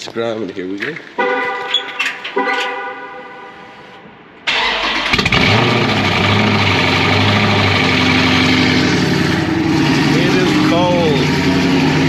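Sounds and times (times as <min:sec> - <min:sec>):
car engine starting and idling: 0:03.7 - 0:12.0.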